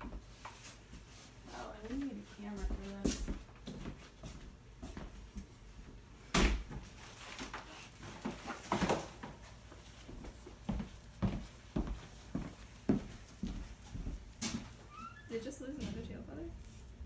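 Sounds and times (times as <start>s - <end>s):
handling knocks and rustles: 6.4s - 14.9s.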